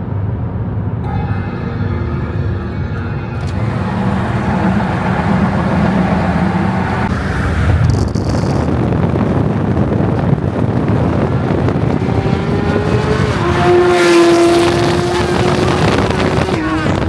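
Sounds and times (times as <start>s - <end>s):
road noise: 0.0s - 17.0s
car engine revving: 3.4s - 17.0s.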